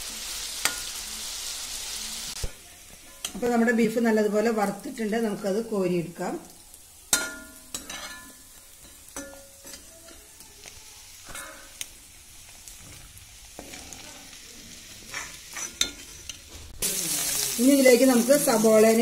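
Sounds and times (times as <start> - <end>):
meat sizzling in oil: 0.0 - 19.0
metal ladle scraping a pan: 7.1 - 10.2, 11.2 - 11.8, 15.0 - 16.7.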